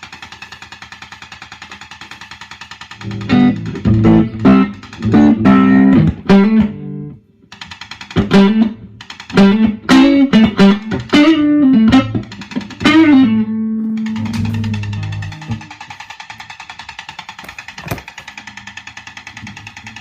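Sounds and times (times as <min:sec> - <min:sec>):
faint rapid ticking from amp: 0:00.0 - 0:06.6
loud electric guitar: 0:03.0 - 0:07.2, 0:09.4 - 0:15.7.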